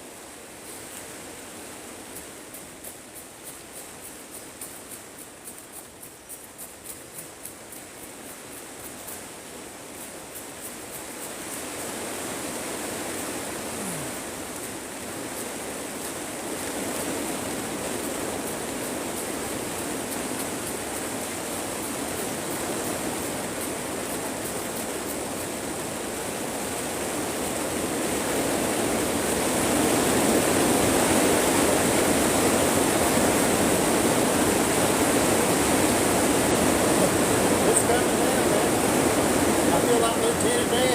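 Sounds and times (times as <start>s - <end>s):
heavy rain on greenhouse roof: 8.8s - 40.9s.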